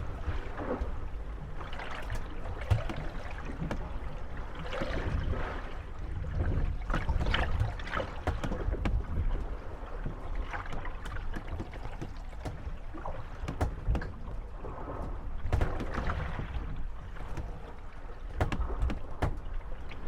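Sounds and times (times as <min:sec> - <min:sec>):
water lapping: 0:00.0 - 0:20.0
wind: 0:00.0 - 0:20.0
wooden boats creaking and knocking: 0:00.0 - 0:20.0.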